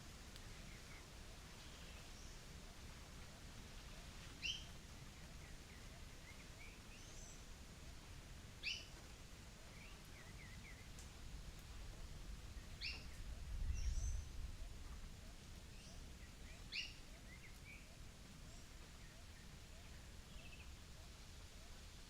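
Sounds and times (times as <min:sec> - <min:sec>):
soft bird chirps: 0:04.4 - 0:07.4, 0:12.5 - 0:22.0.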